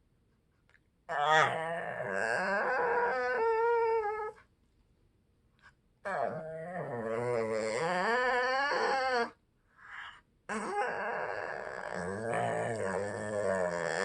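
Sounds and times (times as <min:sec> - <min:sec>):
dog howling: 0:01.1 - 0:04.4, 0:06.1 - 0:09.4, 0:10.5 - 0:14.0.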